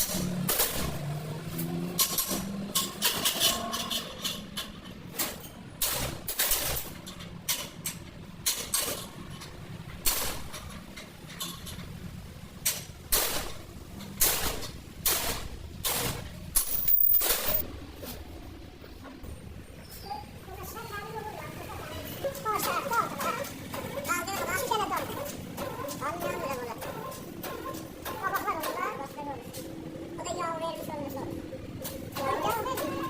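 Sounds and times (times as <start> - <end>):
sharp knocks and clanks on metal: 0.0 - 17.6.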